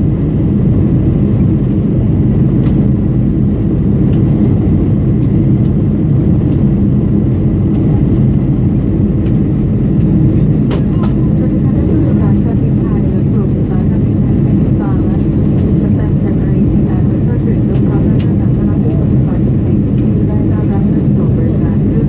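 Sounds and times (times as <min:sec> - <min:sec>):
jet cabin engine drone: 0:00.0 - 0:22.0.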